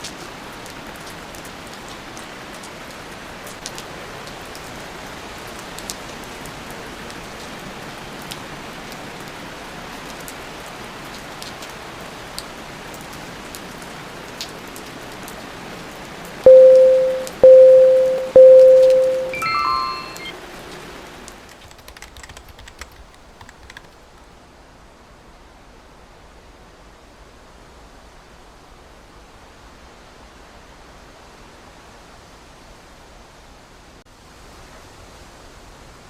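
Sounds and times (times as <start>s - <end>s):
electronic timer beeps: 16.5s - 20.3s.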